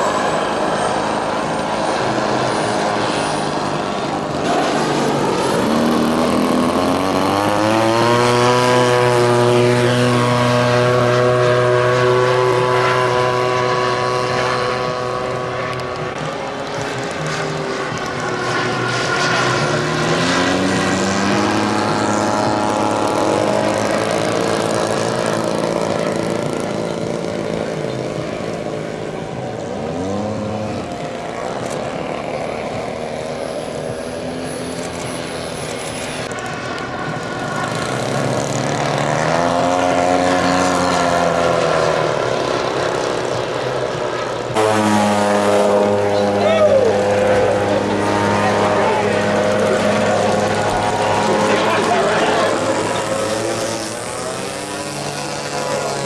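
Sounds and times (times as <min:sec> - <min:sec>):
propeller engines of model planes flying by: 0:00.0 - 0:56.0.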